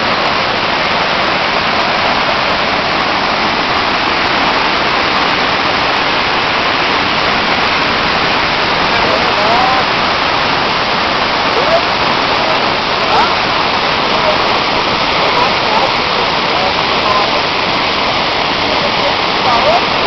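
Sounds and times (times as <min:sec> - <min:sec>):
waterfall rushing: 0:00.0 - 0:20.0
faint voice: 0:11.5 - 0:17.5.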